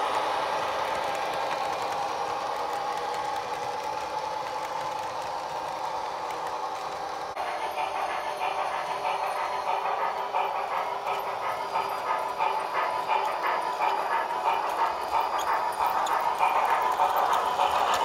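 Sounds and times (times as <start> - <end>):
model train rolling rumble: 0.0 - 18.0
wheels clicking over rail joints: 9.7 - 18.0.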